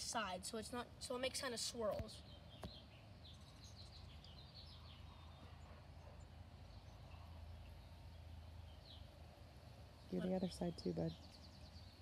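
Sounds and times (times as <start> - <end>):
faint bird chirps: 1.9 - 9.2.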